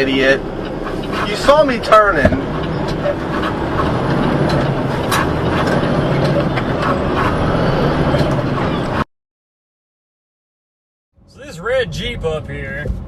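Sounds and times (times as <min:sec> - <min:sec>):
road noise: 0:00.0 - 0:09.1, 0:11.2 - 0:13.0
vehicle engine rumble: 0:00.0 - 0:09.1, 0:11.2 - 0:13.0.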